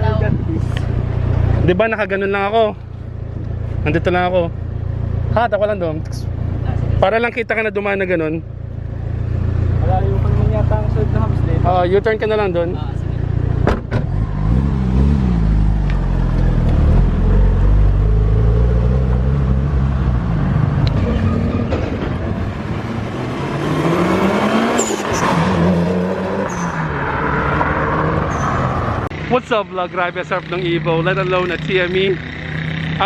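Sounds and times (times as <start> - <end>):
car engine revving: 8.9 - 33.0.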